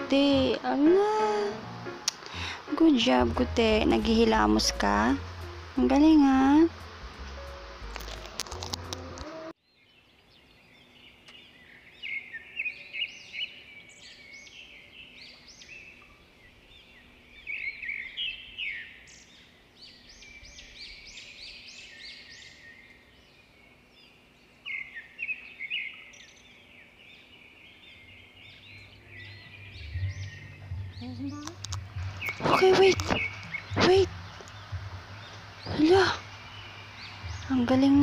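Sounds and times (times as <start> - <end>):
small birds calling: 8.1 - 38.0.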